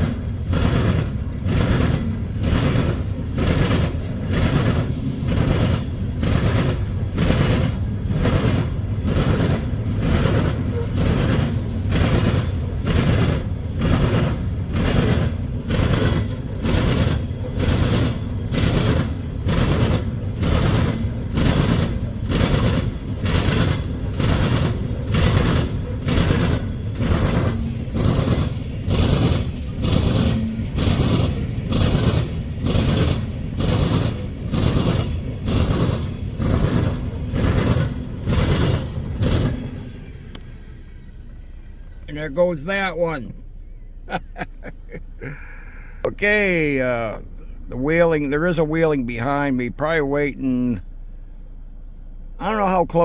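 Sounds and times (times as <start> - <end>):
train wheels clacking: 0.0 - 42.1
train low rumble: 0.0 - 53.0.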